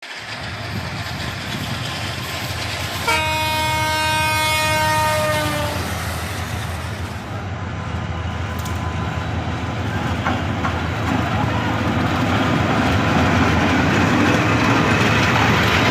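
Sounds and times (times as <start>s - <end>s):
train rumbling: 0.0s - 15.9s
train horn blast: 3.0s - 6.0s.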